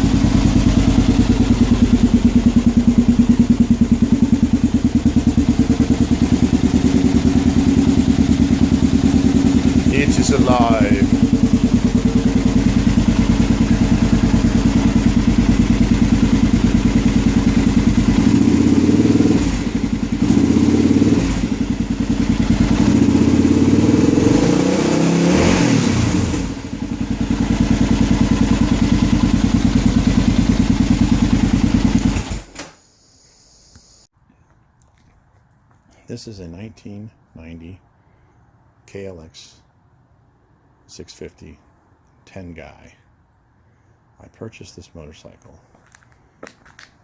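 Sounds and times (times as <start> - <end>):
motorcycle engine running: 0.0 - 32.5.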